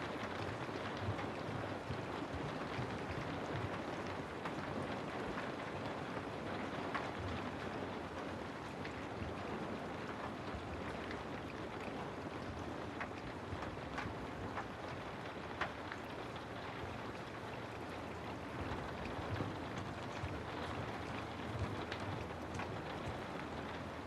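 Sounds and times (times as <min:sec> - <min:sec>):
steady rain on a house: 0:00.0 - 0:24.0
sharp rain drop ticks: 0:10.1 - 0:24.0.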